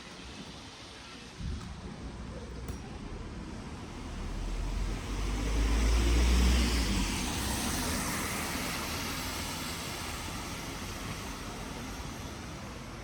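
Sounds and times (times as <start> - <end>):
car passing on wet road: 3.7 - 12.9.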